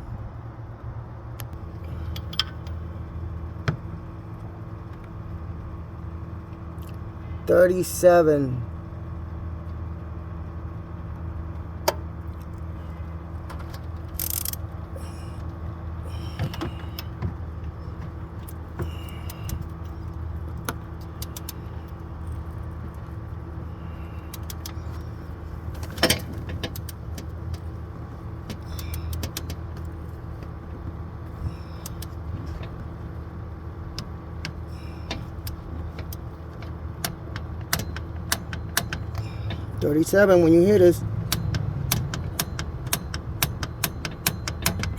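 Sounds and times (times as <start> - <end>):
steady low hum: 0.0 - 44.9
ratchet wrench clicking: 14.1 - 14.6.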